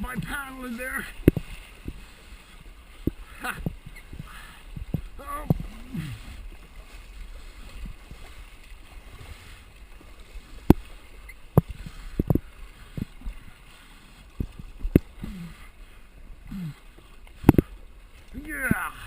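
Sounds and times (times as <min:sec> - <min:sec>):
water sloshing: 0:00.0 - 0:19.0
hollow knocks against hull: 0:01.2 - 0:02.0, 0:03.0 - 0:05.8, 0:11.5 - 0:13.2.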